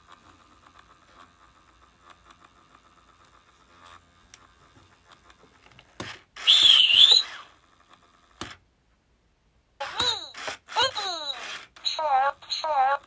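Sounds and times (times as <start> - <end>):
toy warbling call: 6.4 - 7.5.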